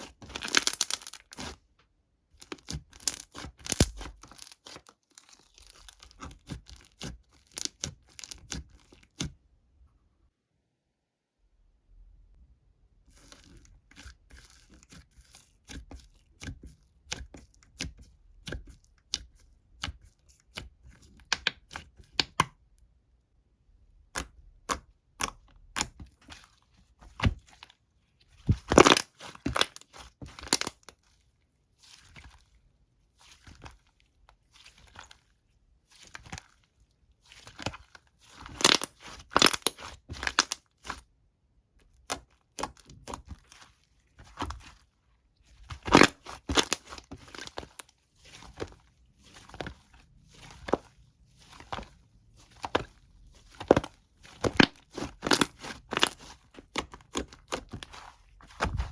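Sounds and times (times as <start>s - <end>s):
material torn and crumpled by hand: 0.0s - 1.6s, 27.2s - 32.6s, 33.2s - 41.1s, 42.7s - 58.9s.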